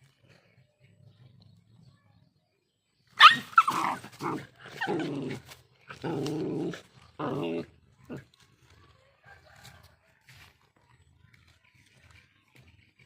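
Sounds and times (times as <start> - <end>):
dog barking or yelping: 3.2 - 4.1
dogs snarling: 3.2 - 8.4.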